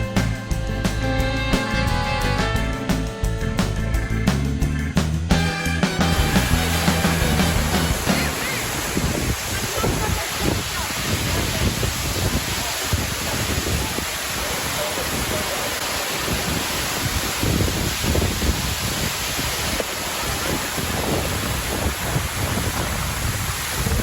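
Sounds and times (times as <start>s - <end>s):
waterfall rushing: 5.4s - 24.0s
wind buffeting microphone: 7.6s - 24.0s.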